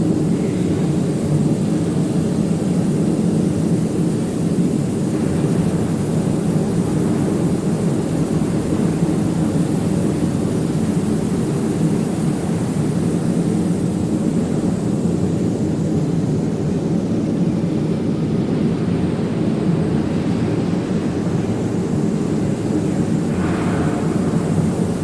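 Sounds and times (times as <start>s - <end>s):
industrial machinery rumbling: 4.6s - 12.0s, 20.1s - 25.0s
bright hiss: 22.2s - 25.0s.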